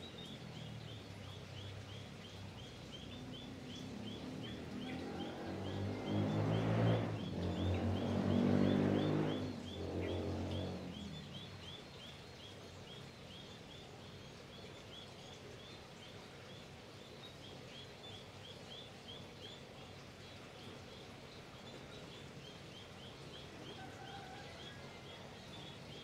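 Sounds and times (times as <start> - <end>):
bird chirping: 0.0 - 19.9.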